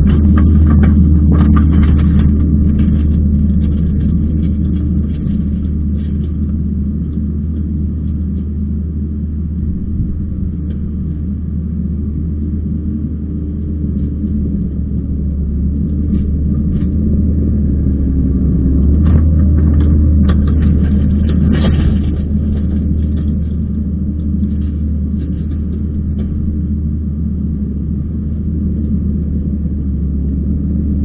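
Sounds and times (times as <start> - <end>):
metal clanks and scraping: 0.0 - 8.5, 18.8 - 26.7
diesel engine under load: 0.0 - 31.0.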